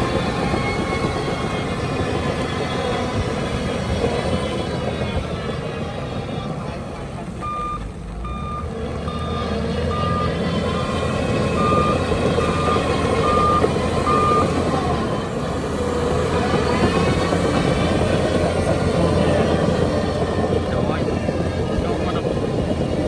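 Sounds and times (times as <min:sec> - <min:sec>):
diesel engines rumbling: 0:00.0 - 0:23.0
reversing machine backup alarm beeping: 0:07.4 - 0:15.0.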